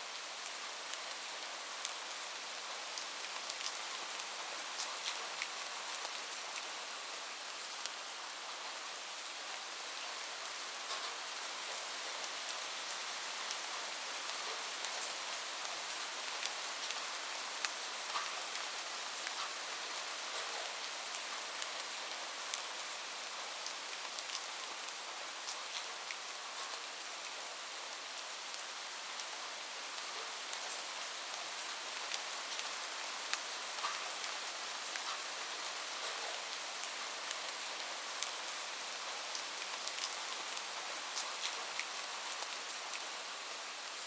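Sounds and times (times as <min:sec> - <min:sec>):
rain falling on a roof: 0:00.0 - 0:44.0.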